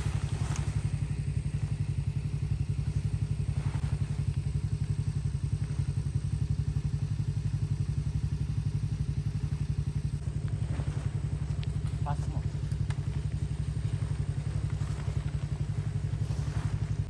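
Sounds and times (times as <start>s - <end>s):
engine running with low throb: 0.0s - 17.0s.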